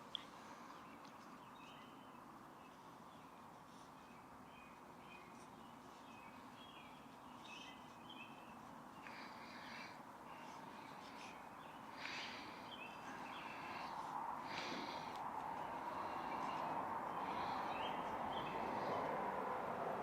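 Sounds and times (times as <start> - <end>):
faint bird chirps: 0.0 - 19.1.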